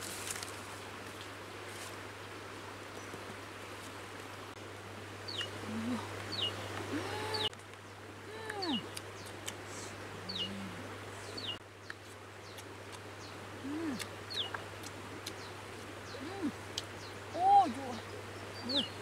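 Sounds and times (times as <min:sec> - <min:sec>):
low rising and falling bird calls: 0:05.3 - 0:07.5, 0:10.2 - 0:11.6.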